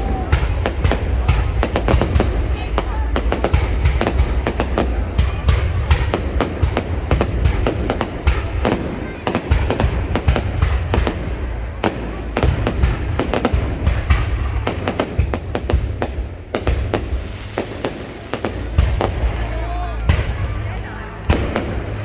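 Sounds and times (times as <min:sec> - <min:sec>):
fireworks bangs and cracks: 0:00.0 - 0:22.0
low rumble: 0:15.9 - 0:22.0.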